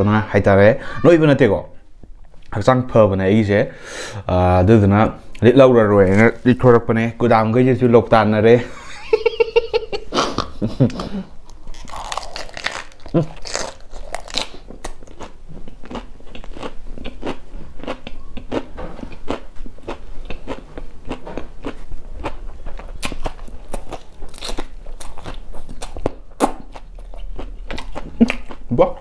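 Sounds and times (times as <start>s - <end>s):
crunchy chewing: 11.4s - 29.0s.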